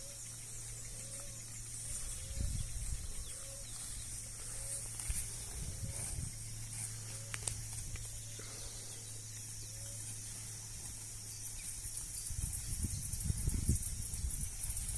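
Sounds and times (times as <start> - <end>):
low hum: 0.0 - 14.8
insects chirring: 0.0 - 14.9
soft rustle: 1.8 - 8.5.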